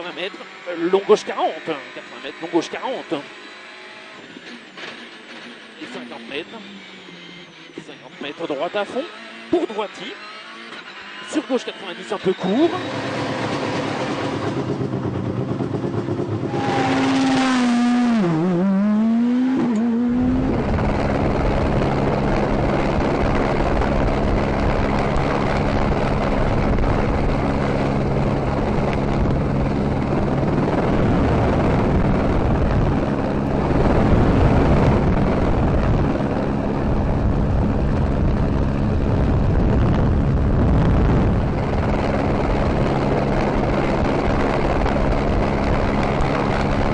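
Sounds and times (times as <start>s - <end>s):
rally car engine revving: 0.0s - 46.9s.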